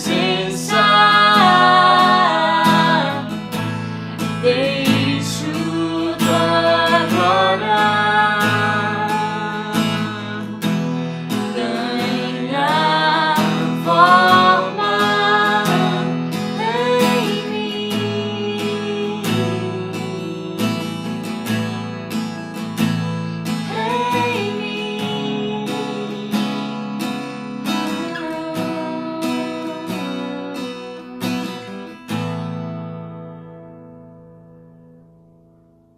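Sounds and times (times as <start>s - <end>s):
person singing: 0.0s - 3.5s, 4.4s - 21.3s, 23.6s - 26.7s, 27.7s - 31.3s
strummed acoustic guitar: 0.0s - 35.9s.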